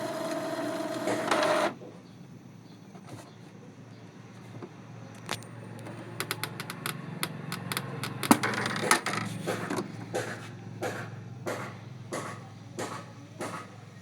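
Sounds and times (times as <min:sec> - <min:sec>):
printer mechanical clicks and rattles: 0:00.0 - 0:01.9, 0:05.2 - 0:13.0
printer hum: 0:00.0 - 0:14.0.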